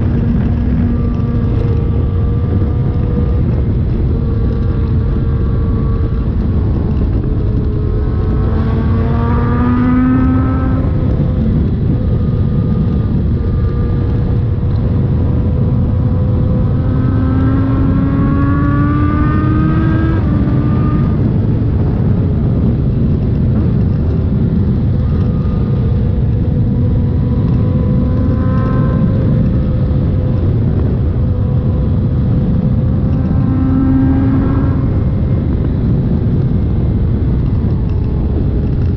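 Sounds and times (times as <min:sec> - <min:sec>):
loud rumbling noise: 0:00.0 - 0:38.9
motorcycle engine accelerating: 0:00.0 - 0:38.9.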